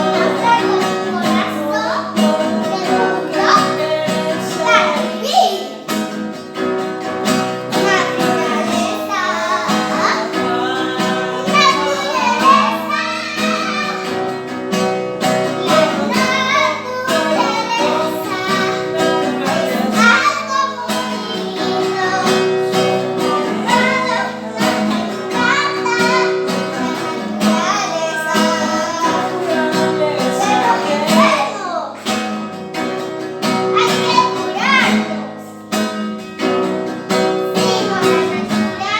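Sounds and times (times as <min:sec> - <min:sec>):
person singing: 0:00.0 - 0:32.1, 0:37.1 - 0:38.9
plucked acoustic guitar: 0:00.0 - 0:38.9.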